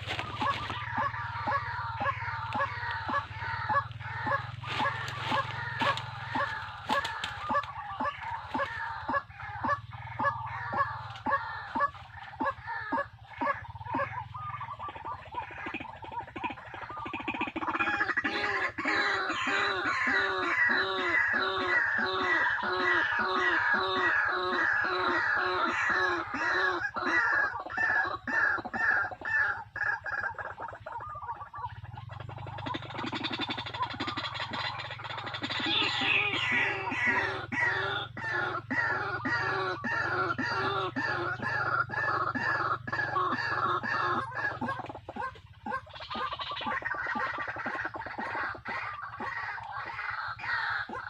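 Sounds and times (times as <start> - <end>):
repeated short bird call: 0.0 - 51.0
steady low hum: 0.0 - 51.0.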